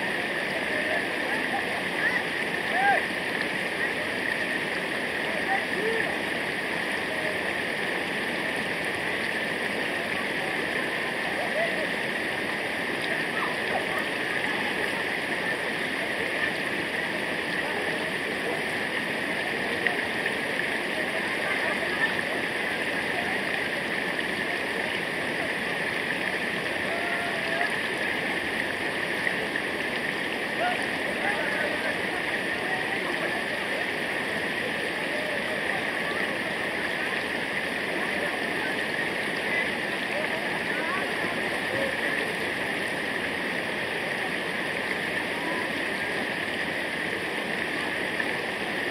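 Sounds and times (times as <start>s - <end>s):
flowing water rushing: 0.0s - 48.9s.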